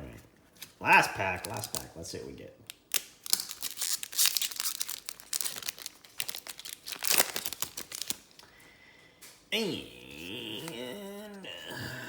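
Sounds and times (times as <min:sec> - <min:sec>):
card pack wrapper crinkling: 0:00.6 - 0:02.0, 0:02.7 - 0:08.5.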